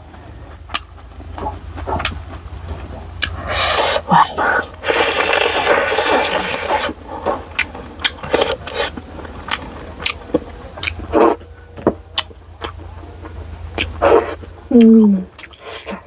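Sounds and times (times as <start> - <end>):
person chewing: 0.0 - 16.0
wet mouth clicks and smacks: 13.7 - 16.0.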